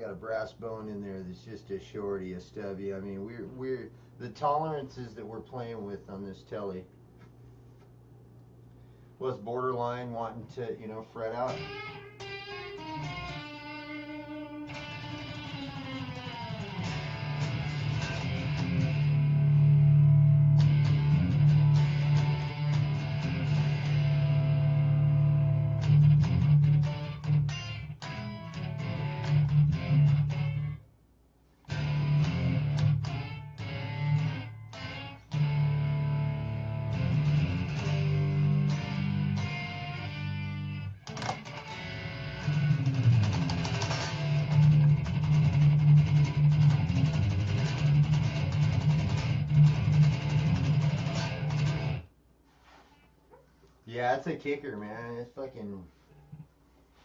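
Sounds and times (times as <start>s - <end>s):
electric guitar blues picking: 11.5s - 30.8s, 31.7s - 52.1s.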